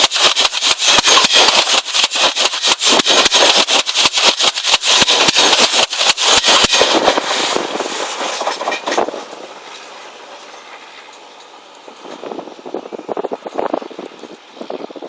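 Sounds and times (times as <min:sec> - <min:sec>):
train wheels clattering over rail joints: 0:00.0 - 0:12.6.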